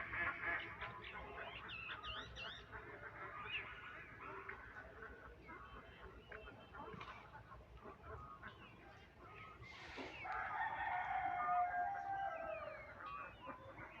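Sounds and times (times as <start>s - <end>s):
rooster crowing: 10.2s - 12.9s.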